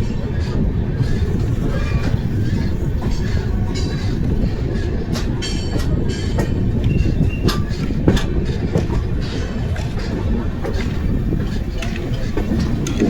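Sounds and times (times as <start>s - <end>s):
train rumbling on track: 0.0s - 13.0s
wheels clicking over rail joints: 0.0s - 13.0s
wheel squeal: 6.8s - 8.0s.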